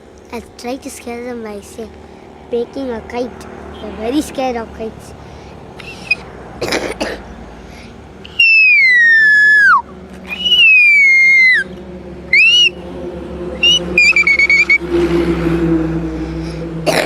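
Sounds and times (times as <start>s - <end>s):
person whistling bird call: 8.3s - 11.7s, 12.4s - 12.8s, 13.6s - 14.8s.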